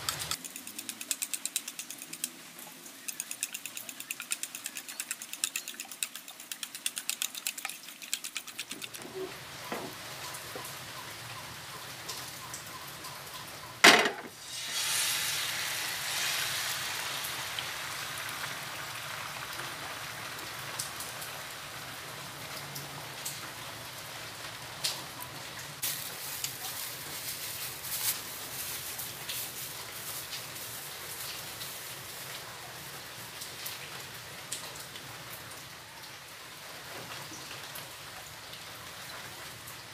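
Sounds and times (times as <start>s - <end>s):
fork beating eggs in bowl: 0.0s - 2.4s, 3.0s - 9.3s
egg sizzling in hot pan: 14.3s - 19.5s.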